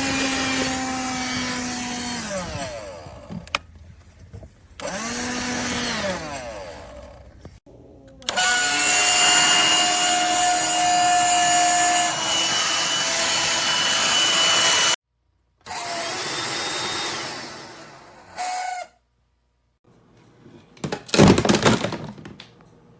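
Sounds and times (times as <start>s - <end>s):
handheld vacuum motor whining: 0.0s - 3.6s, 4.8s - 7.6s, 8.2s - 15.0s.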